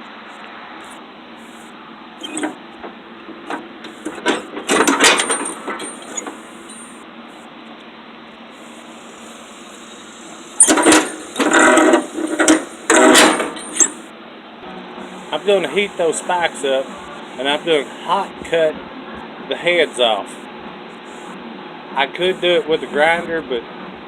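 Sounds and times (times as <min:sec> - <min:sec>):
metal parts clanking and rattling: 0:02.2 - 0:02.6, 0:03.4 - 0:07.0, 0:10.6 - 0:14.0.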